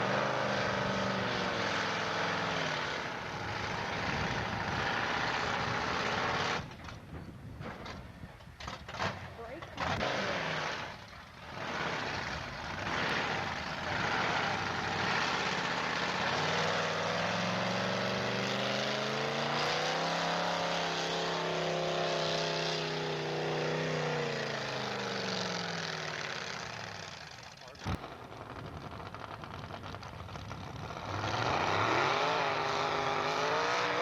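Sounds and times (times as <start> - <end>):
truck engine at high revs: 0.0 - 7.0, 8.6 - 34.0.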